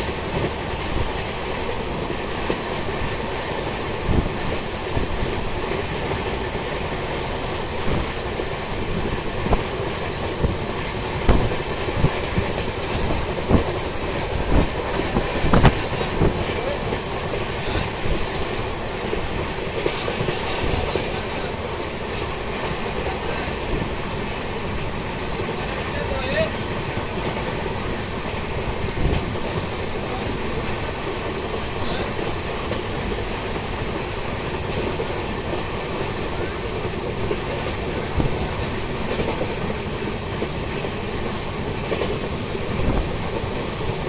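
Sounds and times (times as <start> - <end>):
train rolling rumble: 0.0 - 44.0
wheels clacking over rail joints: 26.4 - 44.0.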